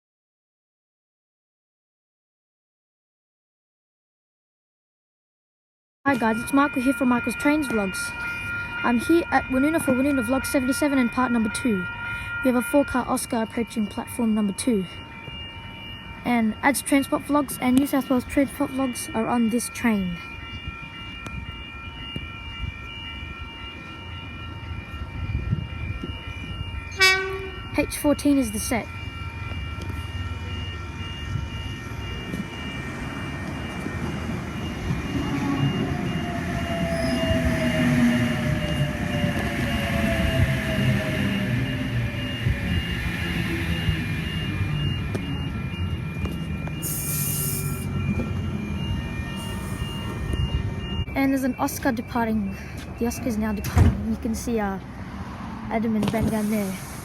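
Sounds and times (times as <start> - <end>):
high-pitched whining tones: 6.1 - 54.5
electric train low rumble: 6.1 - 57.0
short high beeps: 46.6 - 53.8
hiss of air: 46.8 - 47.8.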